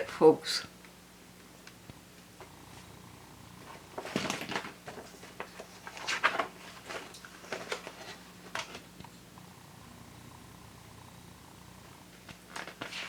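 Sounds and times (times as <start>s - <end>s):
paper rustling and crinkling: 3.7s - 8.9s, 12.3s - 13.0s.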